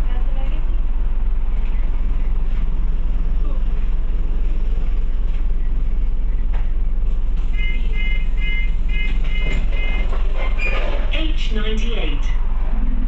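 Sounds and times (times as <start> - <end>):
bus engine running: 0.0 - 13.0
short electronic beeps: 7.6 - 10.8.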